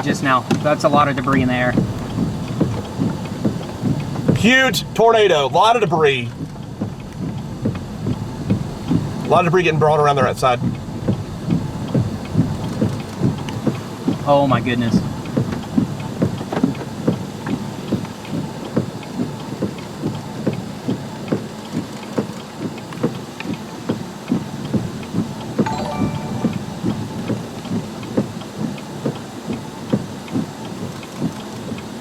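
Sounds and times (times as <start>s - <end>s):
rain on a car: 0.0s - 24.5s
short high-pitched sound: 25.7s - 27.3s.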